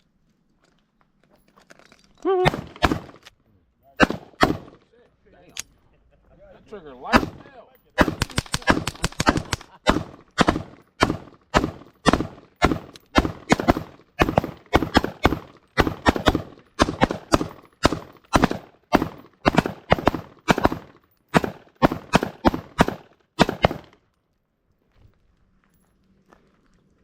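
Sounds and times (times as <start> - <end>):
suppressed pistol shots: 2.4 - 3.2, 4.0 - 4.8, 7.1 - 24.0.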